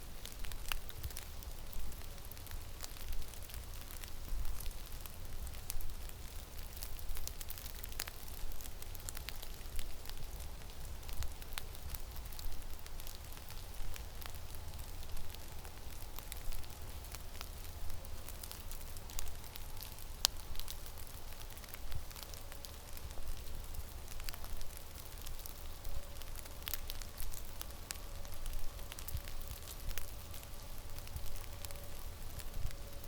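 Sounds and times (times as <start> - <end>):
sharp ticks and crackles: 0.2 - 33.0.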